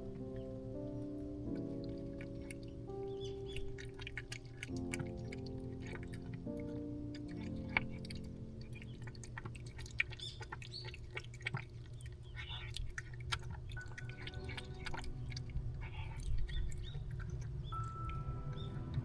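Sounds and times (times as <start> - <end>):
low steady hum: 0.0 - 19.0
cats crunching dry food: 3.4 - 17.9.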